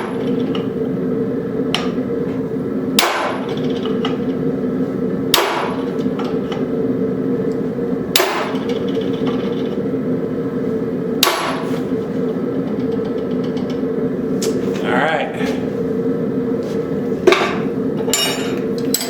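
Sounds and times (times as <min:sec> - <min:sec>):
mechanical hum: 0:00.0 - 0:19.0
hammer striking steel: 0:03.0 - 0:03.5, 0:05.3 - 0:05.8, 0:08.2 - 0:08.6, 0:11.2 - 0:11.7.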